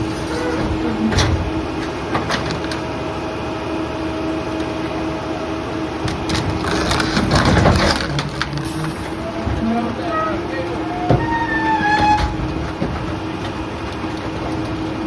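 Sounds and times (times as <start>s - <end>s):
garbage truck engine drone: 0.0s - 15.0s
knocks of debris being loaded: 6.0s - 15.0s.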